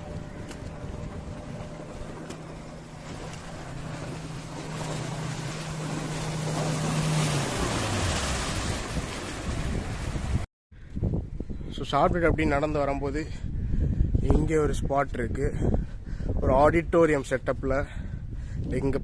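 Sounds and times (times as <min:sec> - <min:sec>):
engine passing by: 0:00.0 - 0:10.4.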